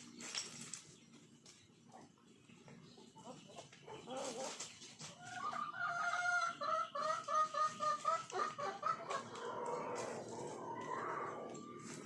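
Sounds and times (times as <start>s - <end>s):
chicken calling: 3.2s - 12.0s.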